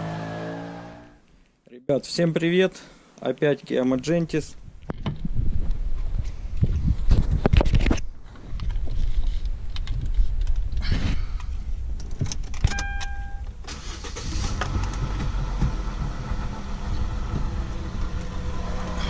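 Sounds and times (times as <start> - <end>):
car engine starting and running: 0.0 - 1.2, 12.3 - 19.0.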